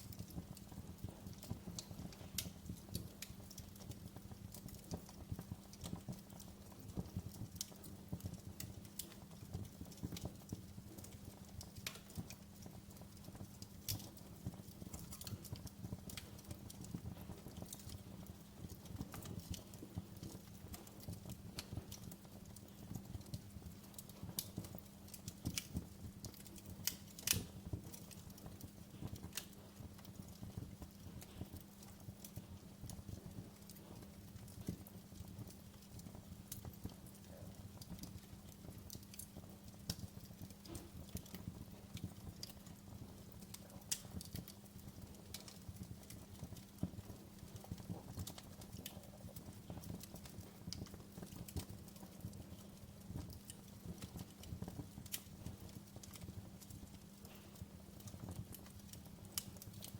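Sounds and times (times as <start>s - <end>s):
fire crackling and popping: 0.0s - 59.9s
low rumble of flames: 0.0s - 59.9s.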